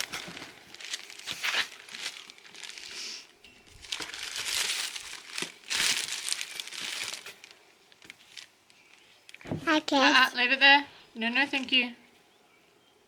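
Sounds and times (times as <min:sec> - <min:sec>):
crinkling and rustling: 0:00.0 - 0:10.0.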